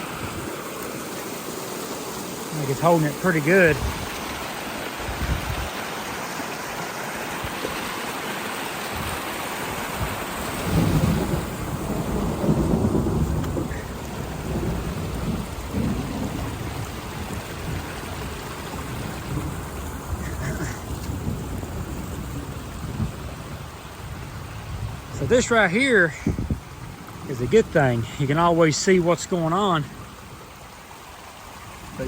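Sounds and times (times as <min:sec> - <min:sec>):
steady rain: 0:00.0 - 0:32.0
thunder rumbling: 0:10.0 - 0:28.9.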